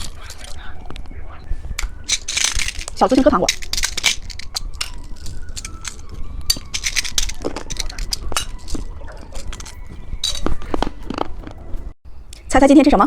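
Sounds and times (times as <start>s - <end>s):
wrapper crinkling: 0.0s - 1.1s, 1.8s - 11.6s
plastic toy clicks and clinks: 1.8s - 10.5s.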